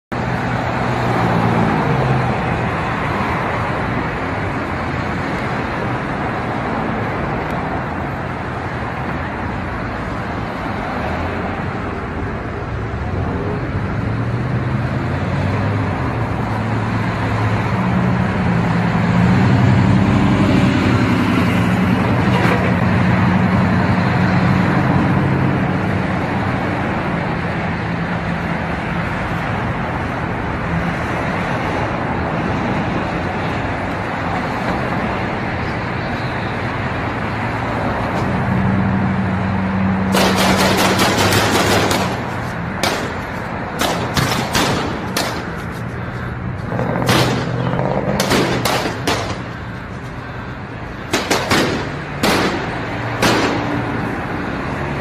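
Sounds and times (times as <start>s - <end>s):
traffic: 0.1s - 55.0s.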